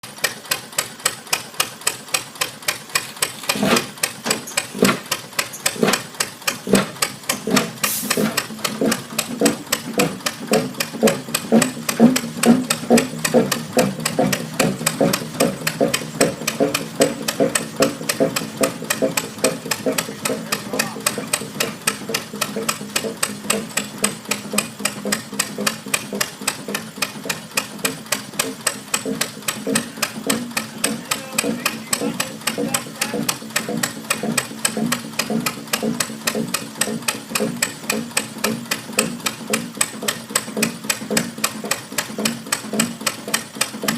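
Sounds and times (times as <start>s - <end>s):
engine knocking: 0.0s - 43.9s
pulsing low engine drone: 3.4s - 43.9s
brief hiss: 7.8s - 8.3s.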